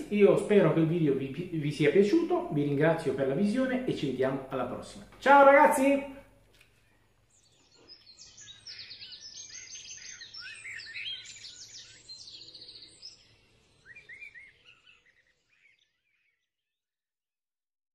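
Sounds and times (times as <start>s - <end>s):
songbirds trilling and chirping: 6.7s - 16.8s.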